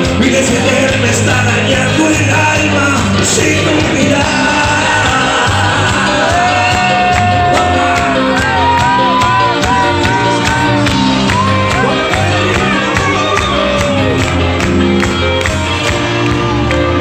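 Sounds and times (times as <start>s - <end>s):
live band music: 0.0s - 17.0s
crowd shouting: 4.2s - 14.6s.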